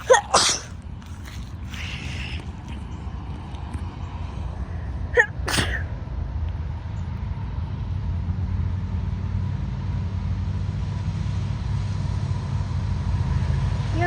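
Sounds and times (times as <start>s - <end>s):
person sneezing: 0.0s - 2.7s, 5.2s - 5.8s.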